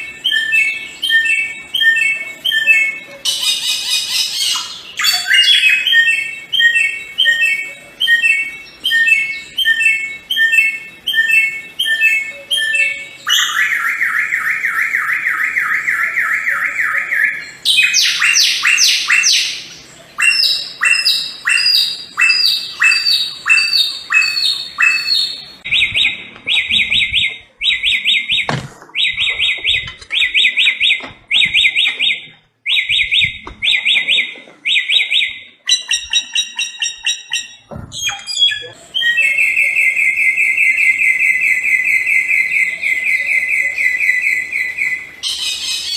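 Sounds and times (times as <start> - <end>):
songbird singing: 0.0 - 45.9.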